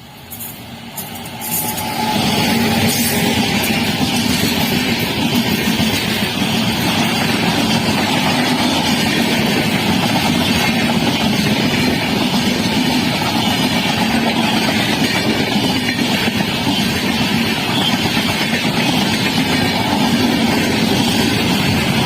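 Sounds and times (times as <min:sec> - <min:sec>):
train passing wheel and rail noise: 0:00.0 - 0:22.0.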